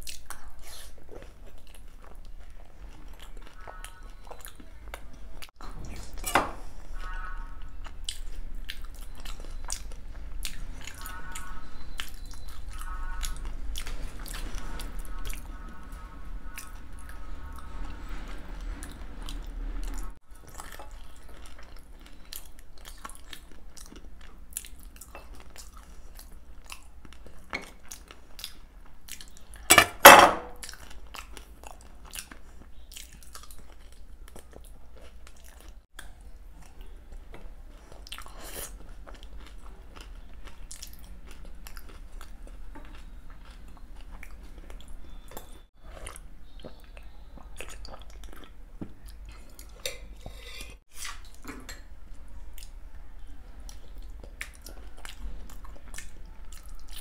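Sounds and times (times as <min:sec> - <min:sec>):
wet chewing and mouth smacks: 0:00.0 - 0:05.6, 0:07.6 - 0:11.1, 0:19.3 - 0:29.7, 0:30.6 - 0:49.8, 0:53.6 - 0:57.0
metal spoon clinking on plate: 0:29.7 - 0:30.6.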